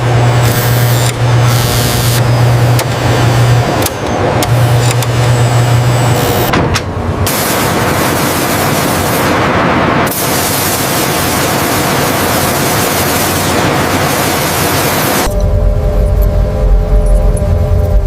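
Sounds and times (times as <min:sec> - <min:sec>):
loud steady hissing: 0:07.1 - 0:15.3.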